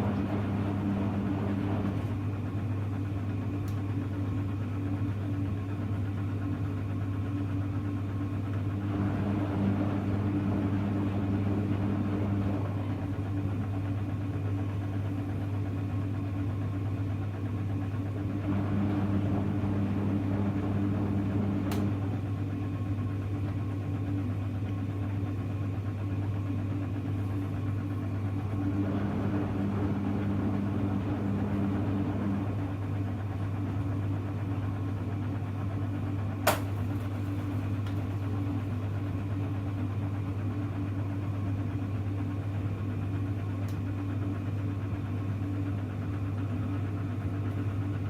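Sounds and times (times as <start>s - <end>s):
steady low hum: 0.0s - 48.0s
washing machine drum motor: 0.0s - 48.0s
washing machine click: 36.4s - 38.3s.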